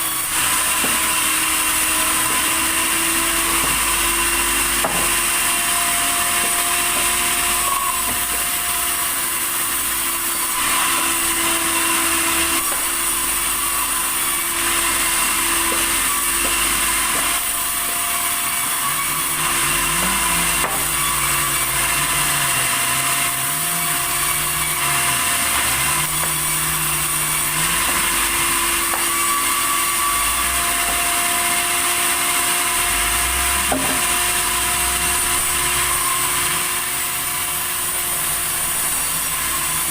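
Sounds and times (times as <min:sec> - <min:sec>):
saw cutting timber: 0:00.0 - 0:39.9.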